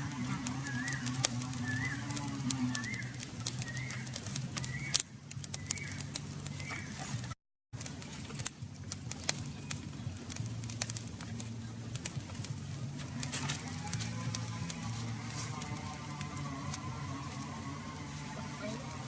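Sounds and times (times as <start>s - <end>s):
small bird chirping: 0.0s - 7.3s
sharp crackles: 0.0s - 19.0s.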